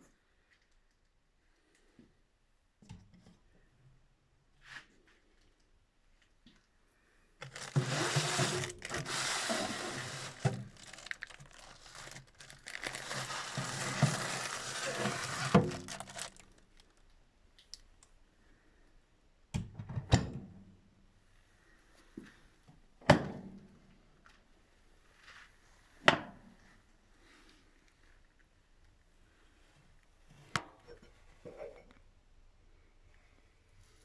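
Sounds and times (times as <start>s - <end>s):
rustling handling noise: 7.4s - 17.0s.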